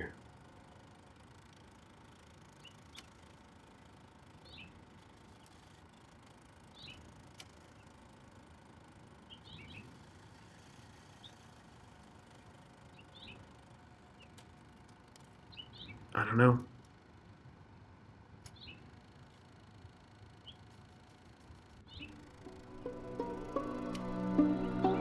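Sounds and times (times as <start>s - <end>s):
small bird chirping faintly: 1.2s - 16.2s, 18.5s - 22.9s.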